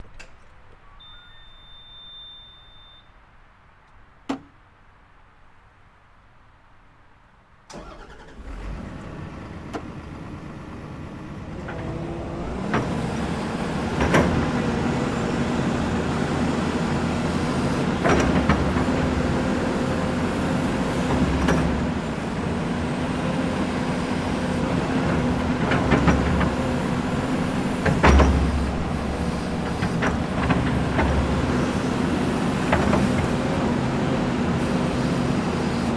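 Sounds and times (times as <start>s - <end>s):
short high beep: 0.9s - 3.2s
excavator diesel engine: 7.7s - 35.9s.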